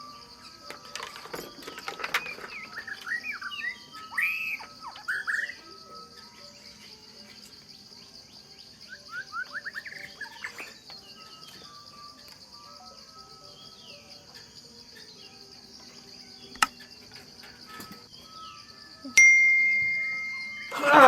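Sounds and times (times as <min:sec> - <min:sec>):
birds chirping: 0:00.0 - 0:21.0
insect drone: 0:00.0 - 0:21.0
sharp clicks: 0:16.5 - 0:16.9.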